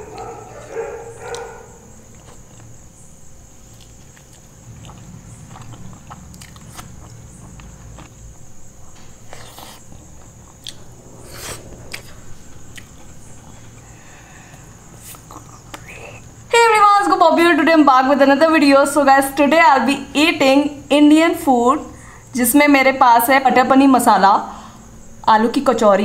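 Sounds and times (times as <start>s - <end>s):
wet chewing and lip smacks: 3.6s - 8.2s, 8.9s - 10.9s, 11.8s - 13.2s.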